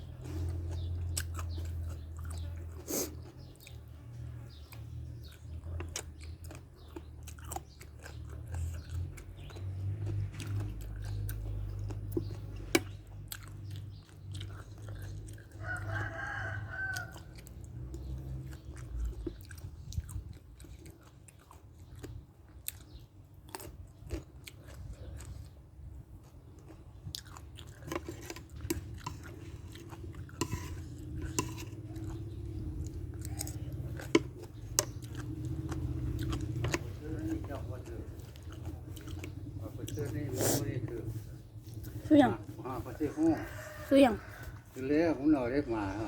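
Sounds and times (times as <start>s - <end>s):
chewing and crunching: 0.0s - 46.0s
rooster crowing: 15.5s - 17.4s, 42.8s - 45.2s.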